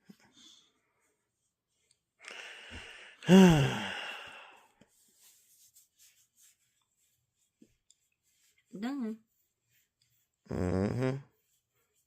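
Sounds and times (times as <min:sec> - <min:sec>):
person sighing: 0:02.3 - 0:04.7.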